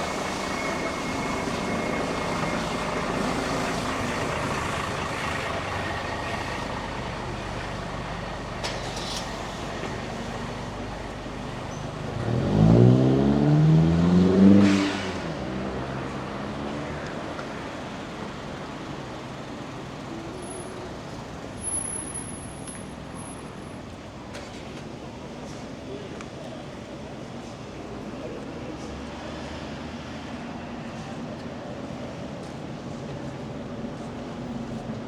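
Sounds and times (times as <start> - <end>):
vehicle accelerating close by: 11.9 - 17.3.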